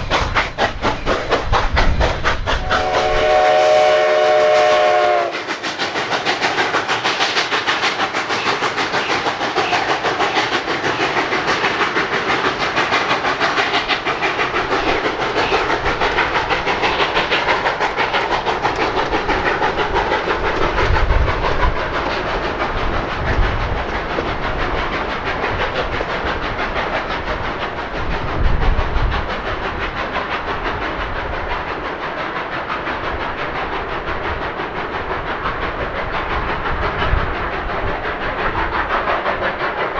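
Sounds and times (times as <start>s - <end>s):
steam hissing: 0.0s - 39.9s
steam train running: 0.0s - 39.9s.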